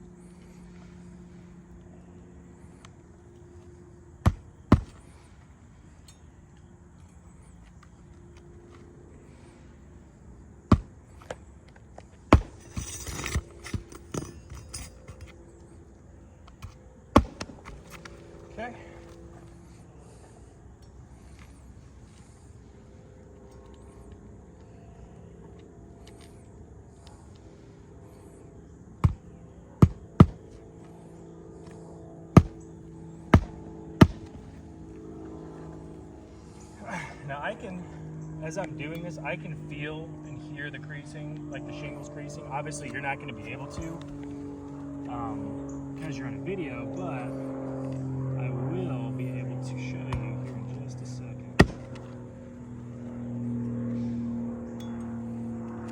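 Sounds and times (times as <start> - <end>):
hammer blows on nails: 29.0 - 30.6, 33.3 - 34.5.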